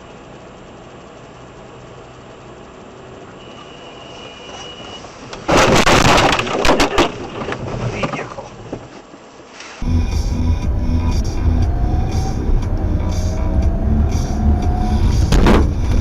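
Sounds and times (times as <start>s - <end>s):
vehicle collision crash: 5.4s - 8.4s, 15.0s - 16.0s
music with steady beat: 9.8s - 16.0s.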